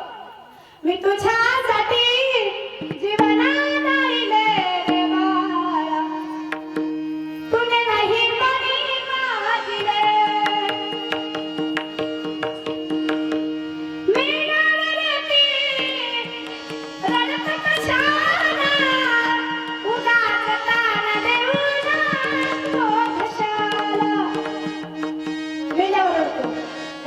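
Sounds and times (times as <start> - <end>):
tabla strokes: 2.7 - 27.0.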